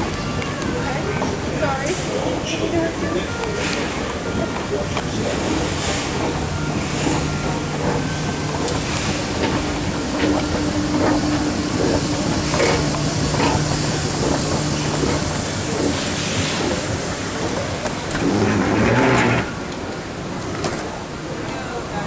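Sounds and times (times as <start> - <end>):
vehicle running rush: 3.9 - 19.6.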